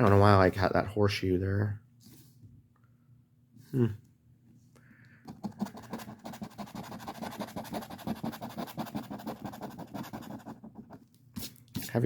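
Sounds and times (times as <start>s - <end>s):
scratch ticket being scratched: 5.3s - 11.0s.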